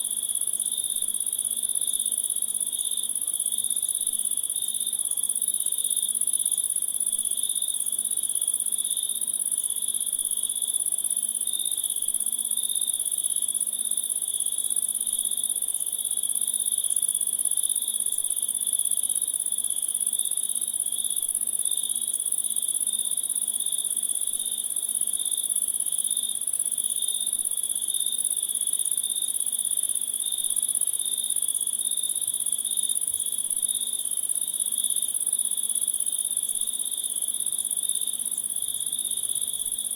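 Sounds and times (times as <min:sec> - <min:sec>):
crickets chirping: 0:22.7 - 0:39.9.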